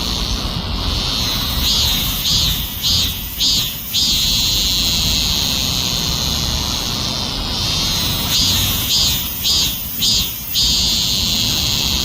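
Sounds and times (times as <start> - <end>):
cicada buzzing: 0.0 - 12.0.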